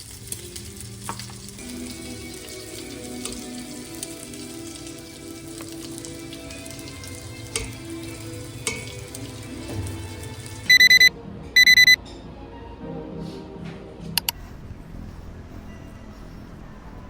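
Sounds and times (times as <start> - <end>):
soft background music: 0.0 - 17.0
high electronic beeps: 10.7 - 12.0.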